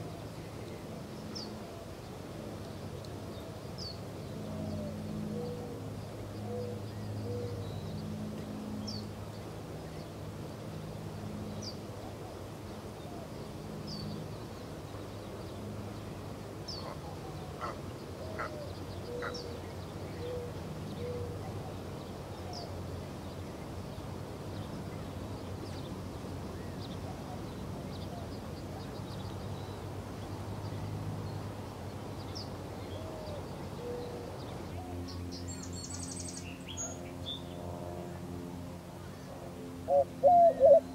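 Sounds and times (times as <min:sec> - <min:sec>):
steady low hum: 0:00.0 - 0:40.9
birds chirping: 0:16.7 - 0:37.7.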